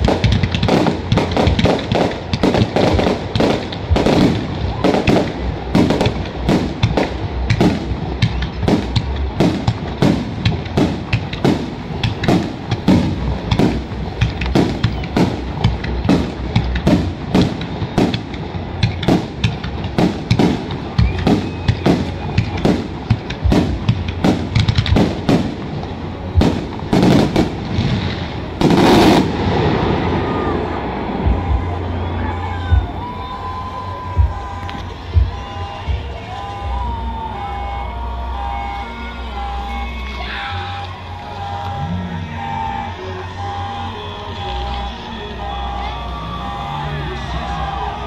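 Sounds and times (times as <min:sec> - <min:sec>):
fireworks bursting: 0:00.0 - 0:48.0.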